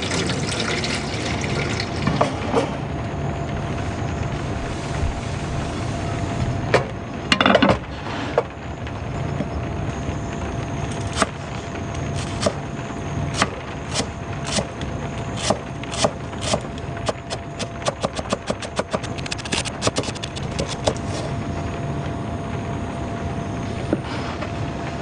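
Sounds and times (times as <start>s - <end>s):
heavy rain hissing: 3.6s - 6.6s.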